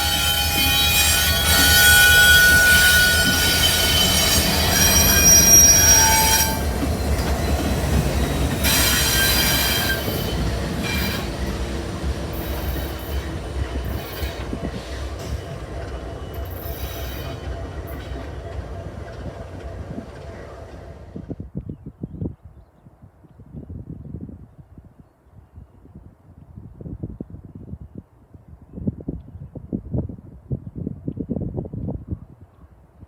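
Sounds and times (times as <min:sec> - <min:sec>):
train wheels squealing on rails: 0:00.0 - 0:21.4
low train rumble: 0:00.0 - 0:21.6.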